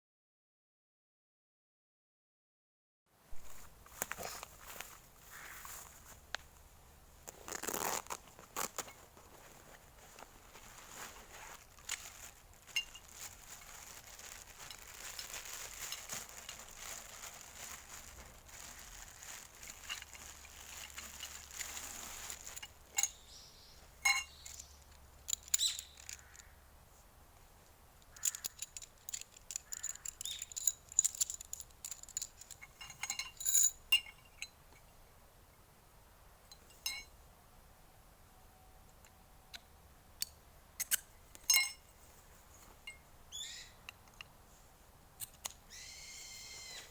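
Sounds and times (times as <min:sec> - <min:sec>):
metal parts clinking: 0:10.5 - 0:23.3, 0:24.0 - 0:26.5, 0:28.1 - 0:34.6, 0:40.8 - 0:41.9.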